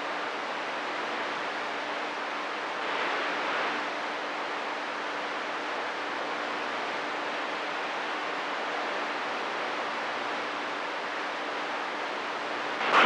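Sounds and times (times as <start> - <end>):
radio static hiss: 0.8 - 4.6, 6.5 - 13.0.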